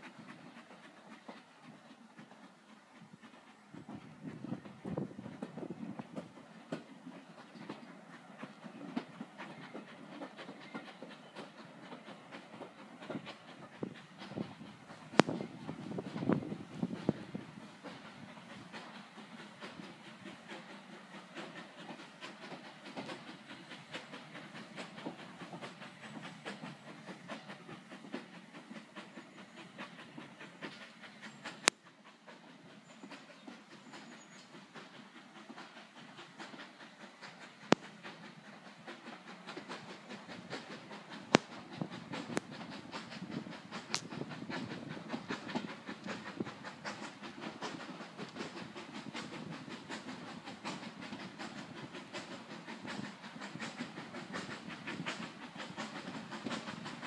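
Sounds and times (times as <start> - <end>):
train wheels clattering on track: 0.0 - 57.0
sharp clicks: 39.5 - 49.4.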